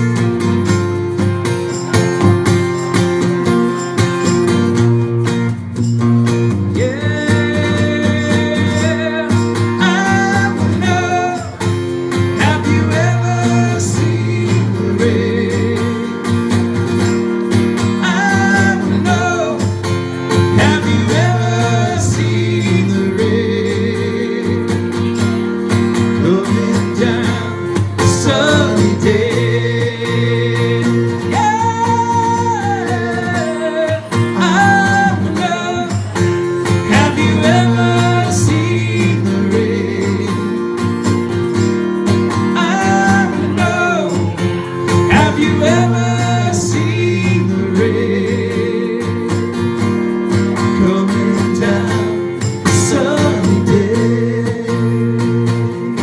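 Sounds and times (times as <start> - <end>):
percussion hits: 0.0 - 56.0
strummed acoustic guitar: 0.0 - 56.0
person singing: 6.8 - 11.7, 12.4 - 16.3, 18.0 - 25.3, 26.2 - 40.7, 42.6 - 49.7, 50.8 - 56.0.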